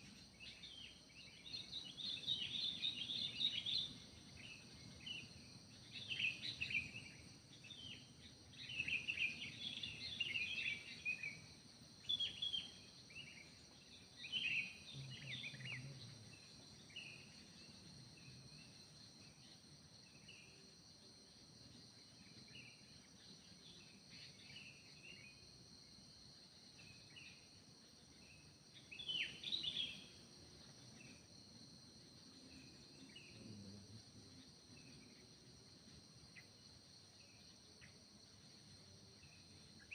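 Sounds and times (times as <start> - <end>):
high-pitched insect drone: 0.0 - 39.9
songbirds chirping: 0.0 - 39.9.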